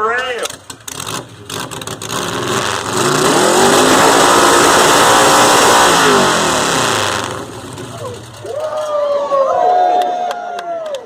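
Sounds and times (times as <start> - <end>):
engine revving: 0.5 - 8.5.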